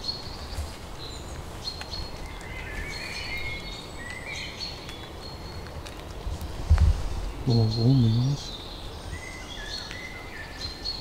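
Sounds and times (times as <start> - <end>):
birds singing: 0.0 - 11.0.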